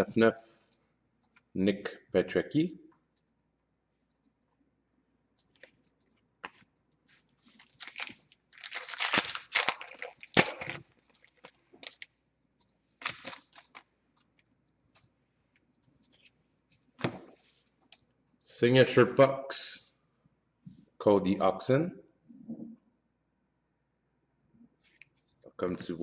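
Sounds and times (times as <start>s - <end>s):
cards rustling: 5.3s - 12.1s, 13.0s - 15.1s
foil wrapper tearing and crinkling: 7.4s - 12.1s, 13.0s - 13.9s.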